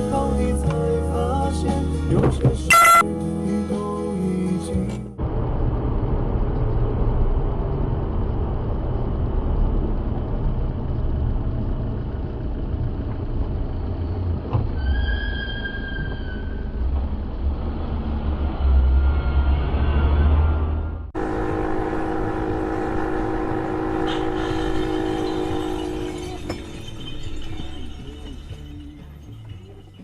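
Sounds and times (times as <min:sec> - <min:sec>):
vehicle road and engine noise: 0:00.0 - 0:30.0
high steady tone: 0:02.7 - 0:03.0.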